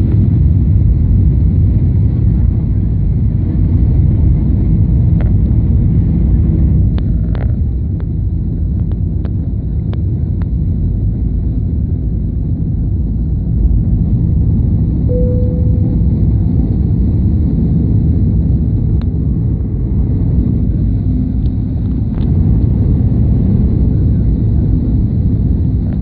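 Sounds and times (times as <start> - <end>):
airliner cabin engine rumble: 0.0 - 26.0
short steady tone: 15.1 - 16.5.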